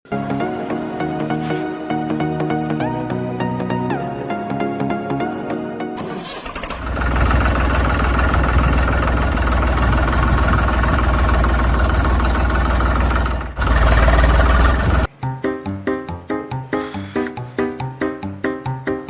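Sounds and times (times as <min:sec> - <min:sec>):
engine rumbling: 0:06.0 - 0:15.4.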